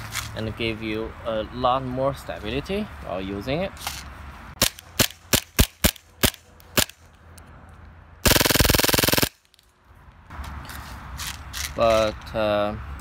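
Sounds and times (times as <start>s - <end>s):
airsoft full-auto burst: 8.2s - 9.4s
airsoft pistol shots: 8.2s - 9.4s.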